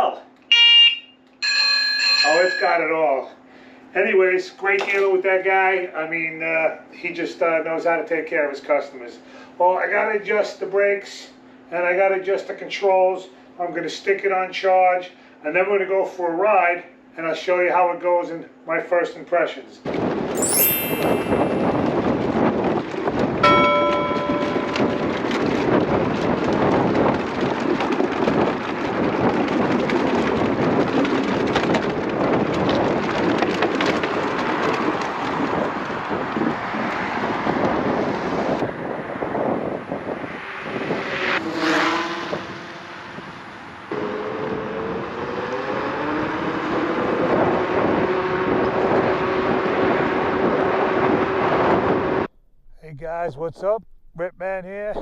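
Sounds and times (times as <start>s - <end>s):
wind buffeting microphone: 21.6s - 41.3s.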